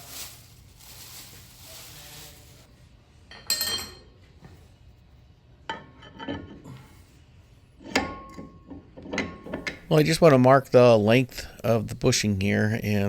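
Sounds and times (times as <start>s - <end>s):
faint hiss: 0.0s - 2.7s
metal tools clinking: 3.3s - 4.1s.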